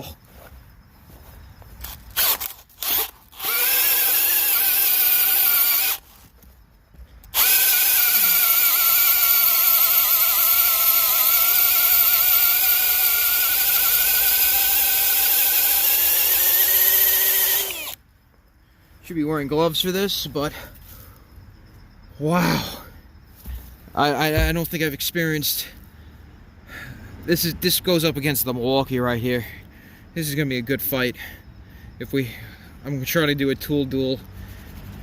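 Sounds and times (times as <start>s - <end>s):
hammer drill motor whining: 1.8s - 6.2s, 7.3s - 18.0s.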